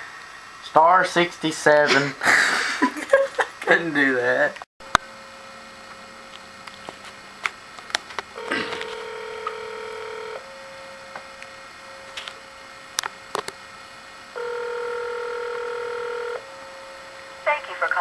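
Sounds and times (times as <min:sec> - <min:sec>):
faint phone line hum: 0:08.3 - 0:12.4, 0:14.3 - 0:18.0
phone line clicks: 0:08.4 - 0:10.4
telephone ringback tone: 0:08.4 - 0:10.4, 0:14.4 - 0:16.4.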